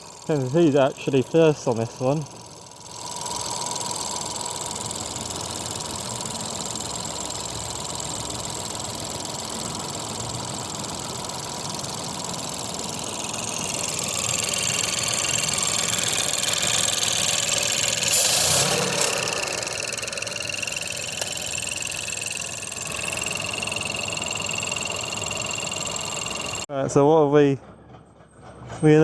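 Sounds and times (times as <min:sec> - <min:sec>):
car engine running: 0:08.1 - 0:26.7.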